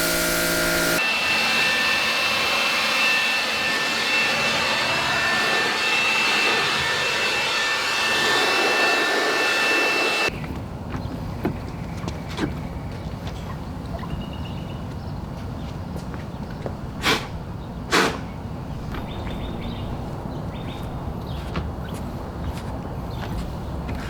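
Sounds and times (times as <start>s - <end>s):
car wash equipment hissing: 0.0s - 10.3s
high steady whine: 0.0s - 10.3s.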